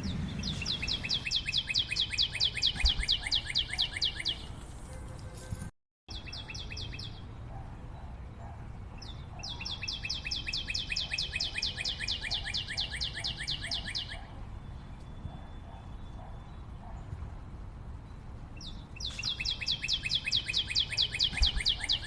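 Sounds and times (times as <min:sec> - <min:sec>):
bird calling in rapid runs: 0:00.0 - 0:04.6, 0:19.0 - 0:22.0.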